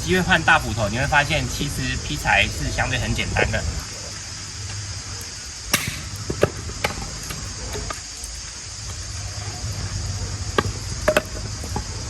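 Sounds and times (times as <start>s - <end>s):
steady high hiss: 0.0s - 12.0s
axe striking log: 5.7s - 7.0s.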